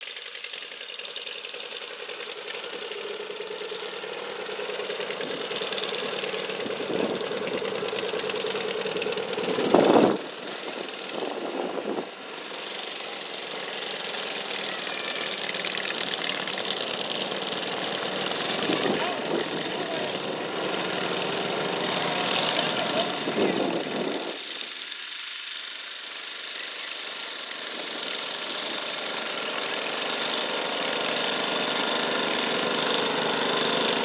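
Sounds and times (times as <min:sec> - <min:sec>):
tractor engine at high revs: 0:00.0 - 0:34.0.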